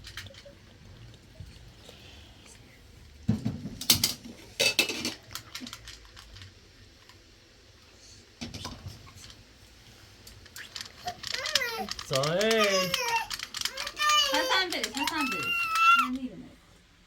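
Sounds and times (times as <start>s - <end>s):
hard objects clattering together: 3.4s - 6.6s, 10.3s - 15.8s.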